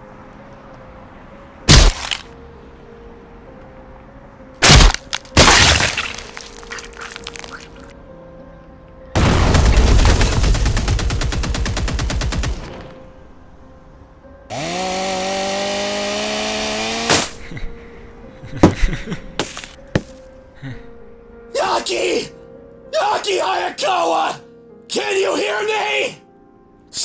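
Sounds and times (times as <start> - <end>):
machine gun fire: 9.4 - 12.9.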